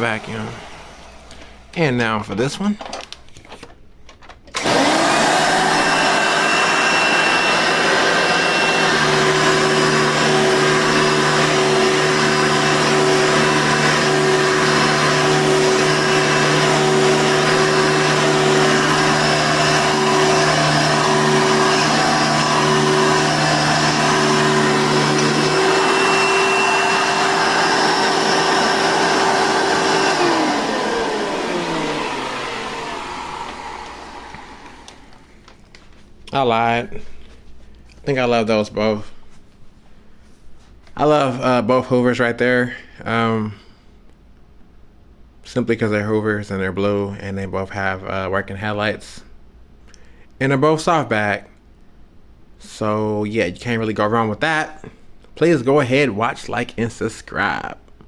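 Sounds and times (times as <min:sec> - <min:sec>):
vacuum cleaner motor whine: 0:00.0 - 0:01.9, 0:04.5 - 0:35.6.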